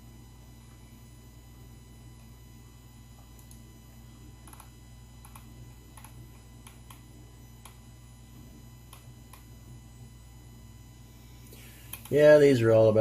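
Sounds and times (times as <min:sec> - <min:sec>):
steady low hum: 0:00.0 - 0:13.0
computer mouse clicks: 0:03.4 - 0:03.6, 0:04.4 - 0:07.0, 0:07.6 - 0:07.8, 0:08.9 - 0:09.5, 0:11.9 - 0:12.2.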